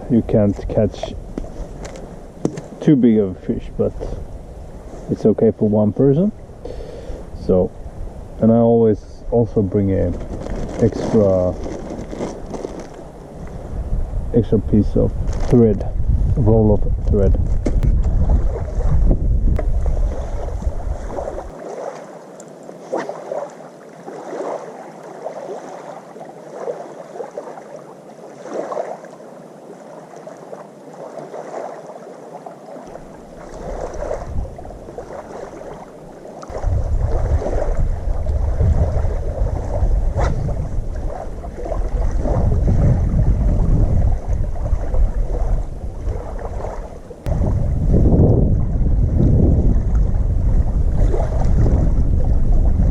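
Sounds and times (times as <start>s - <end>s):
wind buffeting microphone: 0.0s - 21.6s, 33.4s - 35.8s, 36.5s - 52.9s
small waves lapping: 9.3s - 13.8s, 17.8s - 47.8s, 48.5s - 52.9s.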